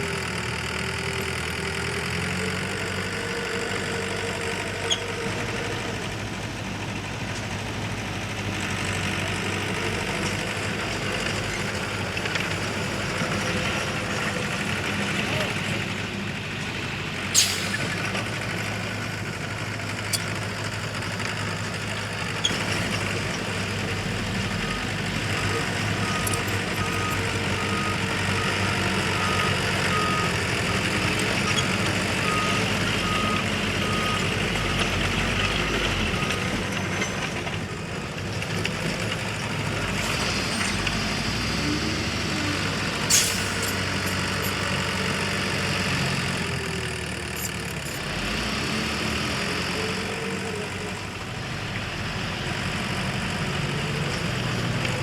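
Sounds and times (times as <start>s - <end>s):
diesel engine running: 0.0s - 55.0s
reversing alarm beeping: 24.5s - 34.4s.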